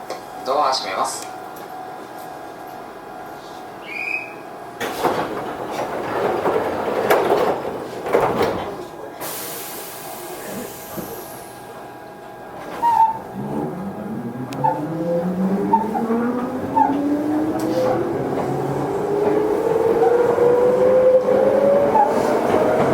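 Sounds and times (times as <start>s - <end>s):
train rumble and clatter: 0.0s - 22.9s
air hiss: 9.2s - 11.5s
traction motors whining: 12.6s - 22.9s.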